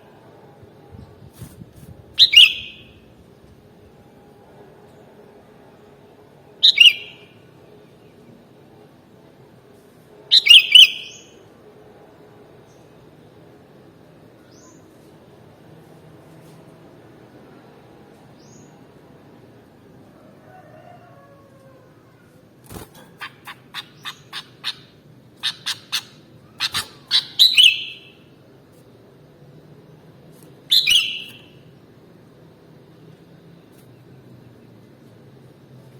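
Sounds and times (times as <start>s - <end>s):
faint steady hum: 0.0s - 35.9s
bird calling: 23.1s - 28.2s.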